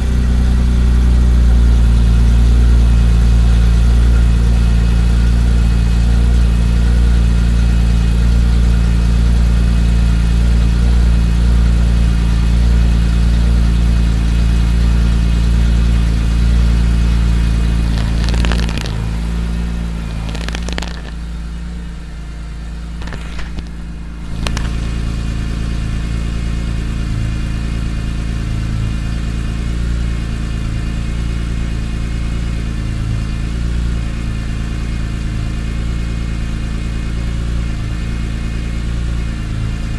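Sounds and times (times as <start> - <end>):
car engine idling: 0.0 - 39.9
sharp clicks: 17.7 - 21.4, 23.0 - 26.5.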